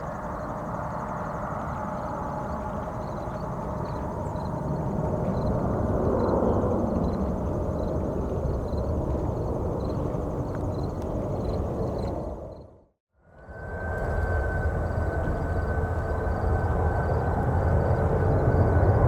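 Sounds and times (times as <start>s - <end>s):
jet airliner engines rumbling: 0.0s - 12.6s, 13.3s - 19.0s.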